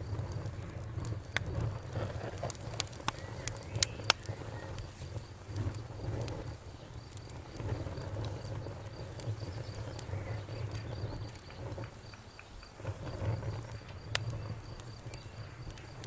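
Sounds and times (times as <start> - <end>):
campfire flames rumbling: 0.0 - 16.0
fire crackling and popping: 0.0 - 16.0.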